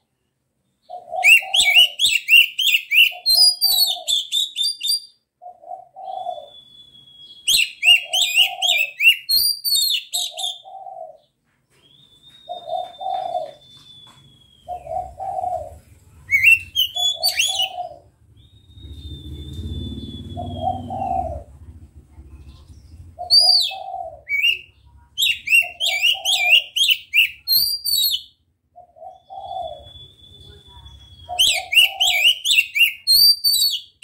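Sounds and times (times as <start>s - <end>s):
bird singing varied phrases: 0.0s - 21.5s, 22.5s - 34.0s
dove cooing: 0.8s - 4.4s, 5.4s - 6.6s, 7.5s - 9.2s, 10.2s - 11.4s, 12.5s - 13.8s, 14.6s - 18.2s, 18.8s - 27.5s, 28.7s - 30.0s, 31.2s - 33.1s
long steady whistles: 6.5s - 7.5s, 18.4s - 20.8s, 29.8s - 31.3s.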